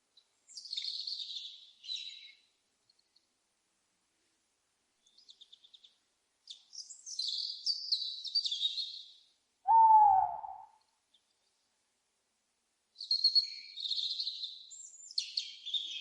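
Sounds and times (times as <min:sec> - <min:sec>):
small birds chirping: 0:00.1 - 0:03.3, 0:05.0 - 0:11.7, 0:13.0 - 0:16.0
owl hoot: 0:09.7 - 0:10.8.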